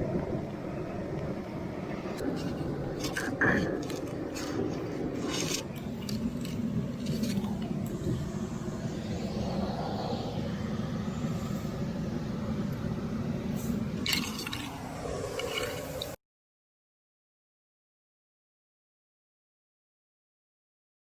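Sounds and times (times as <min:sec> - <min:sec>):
climbing gear clinking: 0:02.4 - 0:08.0, 0:14.0 - 0:14.8.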